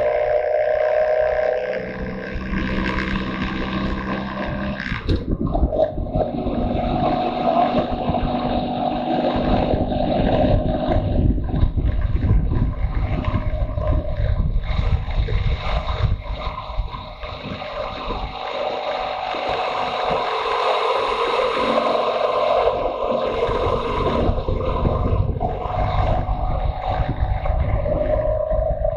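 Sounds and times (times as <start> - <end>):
motorcycle engine running: 0.0 - 28.9
wind noise on microphone: 0.0 - 28.9.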